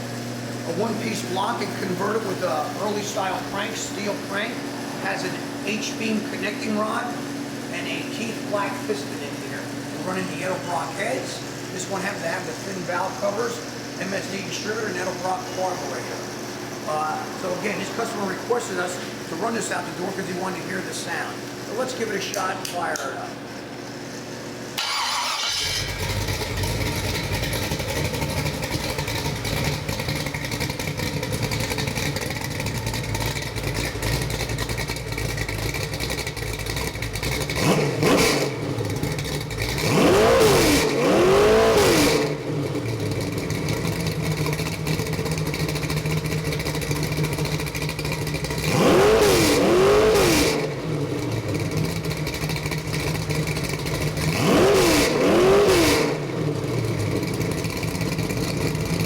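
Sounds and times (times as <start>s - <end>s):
vee eight engine idling: 0.0s - 59.0s
engine cranking and starting: 24.8s - 59.0s
engine revving: 24.8s - 59.0s.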